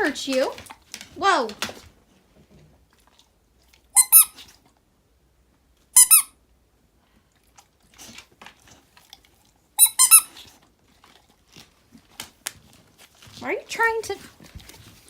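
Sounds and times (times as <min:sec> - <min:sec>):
squeaky toy squeaking: 0:04.0 - 0:04.4, 0:06.0 - 0:06.4, 0:09.8 - 0:10.4.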